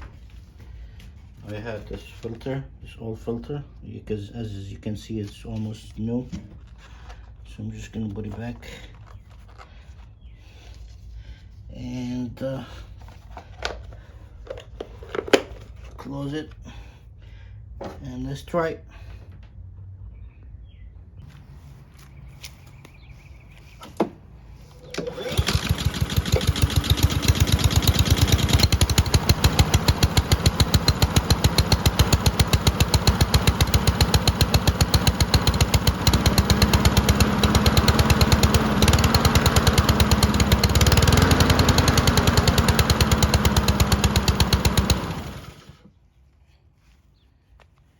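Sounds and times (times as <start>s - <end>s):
lawn mower engine: 24.6s - 45.9s.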